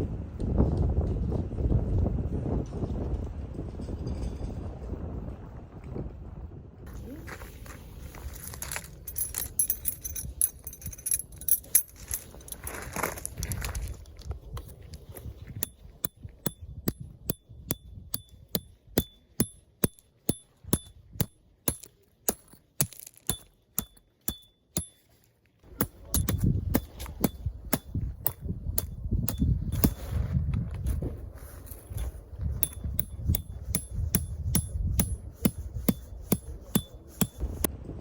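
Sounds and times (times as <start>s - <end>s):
sharp metallic taps: 15.5s - 25.0s, 25.7s - 30.0s, 32.6s - 37.7s
low rumble: 37.4s - 38.0s.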